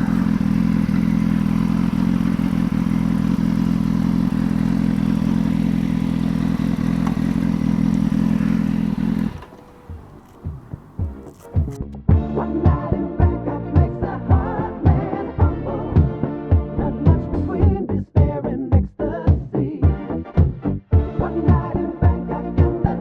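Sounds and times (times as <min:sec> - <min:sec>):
motorcycle engine idling: 0:00.0 - 0:11.8.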